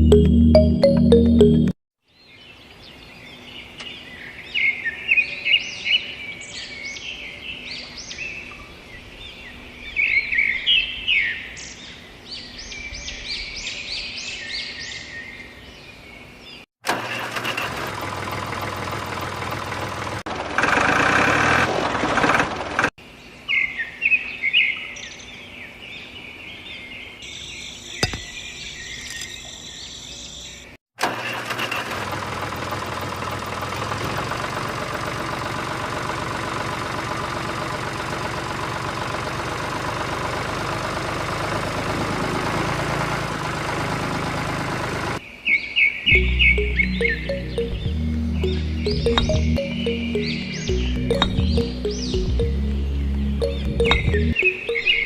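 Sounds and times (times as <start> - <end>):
small engine running: 16.8 - 22.9, 31.0 - 45.2, 48.4 - 52.5
birds chirping: 23.2 - 30.8, 45.2 - 55.0.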